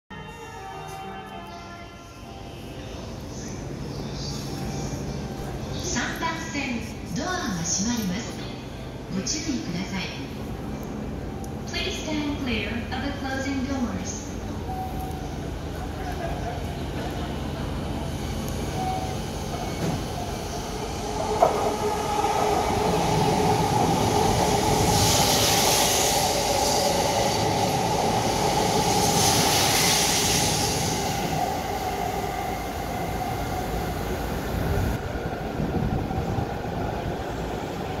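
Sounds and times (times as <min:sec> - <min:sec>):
train passing with rumble and whine: 0:00.1 - 0:38.0.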